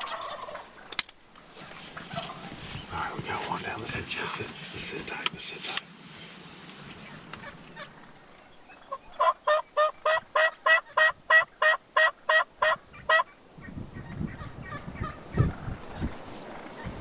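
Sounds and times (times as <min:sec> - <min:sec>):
wild turkey yelping: 0:00.0 - 0:03.2, 0:07.0 - 0:17.0.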